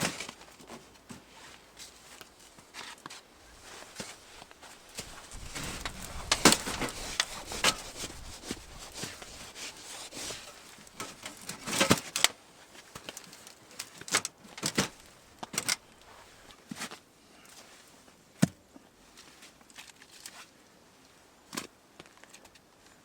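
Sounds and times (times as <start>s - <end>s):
rustling: 0.0s - 17.0s.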